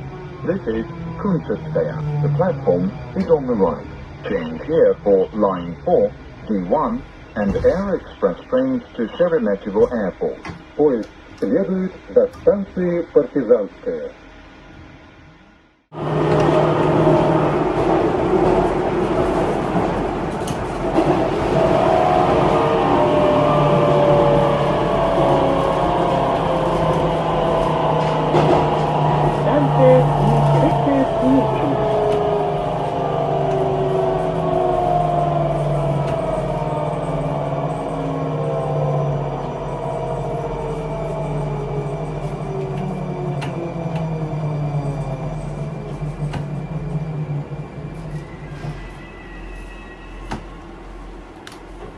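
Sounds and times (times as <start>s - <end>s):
metro train rolling: 0.0s - 51.9s
whining tones sliding lower: 20.2s - 51.1s.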